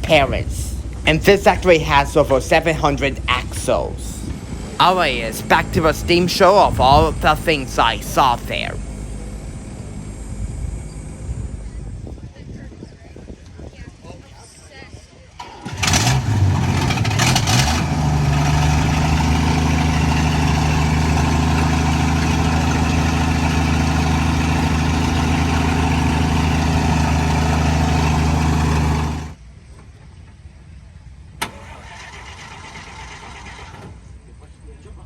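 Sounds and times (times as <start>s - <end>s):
engine running: 0.0s - 12.2s, 15.4s - 29.4s.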